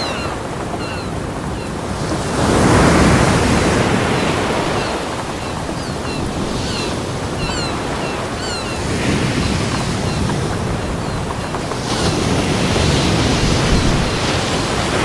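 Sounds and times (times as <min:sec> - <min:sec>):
high falling bird calls: 0:00.0 - 0:01.7, 0:04.0 - 0:11.6
ocean surf on beach: 0:00.0 - 0:15.0.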